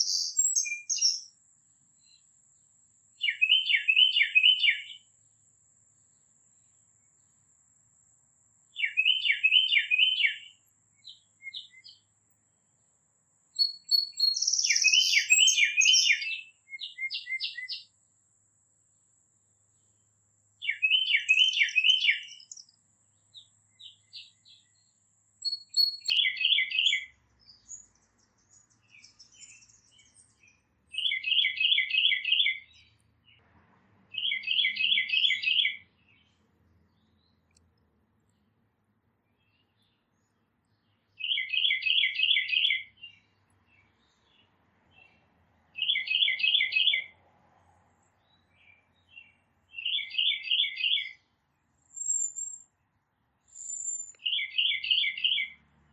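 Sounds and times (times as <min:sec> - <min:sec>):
single bird chirps: 0:00.0 - 0:01.4, 0:02.0 - 0:02.3, 0:03.2 - 0:05.1, 0:08.7 - 0:12.1, 0:13.6 - 0:17.9, 0:20.6 - 0:33.4, 0:34.1 - 0:36.4, 0:45.8 - 0:47.1, 0:48.1 - 0:51.2, 0:51.8 - 0:52.8, 0:53.5 - 0:55.6
songbird singing: 0:00.0 - 0:05.2, 0:05.9 - 0:18.0, 0:19.3 - 0:33.4, 0:34.1 - 0:47.2, 0:48.0 - 0:55.9.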